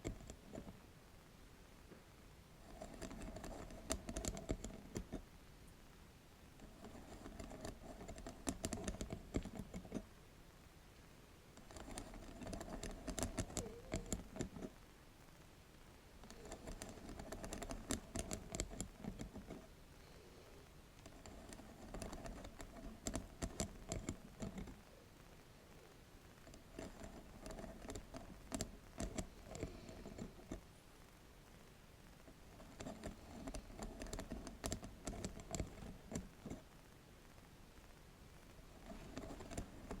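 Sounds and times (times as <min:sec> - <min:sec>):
tapping and scratching on bamboo mat: 0:02.6 - 0:05.2, 0:06.6 - 0:10.1, 0:11.6 - 0:14.8, 0:16.2 - 0:19.7, 0:21.0 - 0:24.9, 0:26.4 - 0:30.6, 0:32.3 - 0:36.7, 0:38.7 - 0:40.0.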